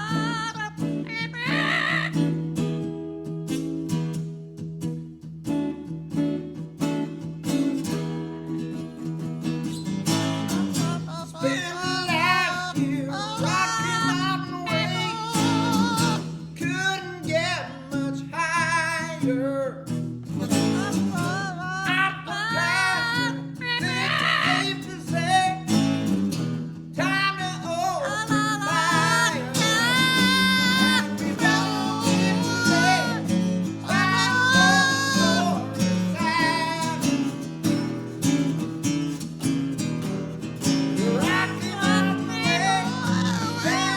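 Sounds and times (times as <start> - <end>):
acoustic guitar strumming: 0.0 - 43.9
parrot singing: 1.1 - 2.2, 28.6 - 36.9.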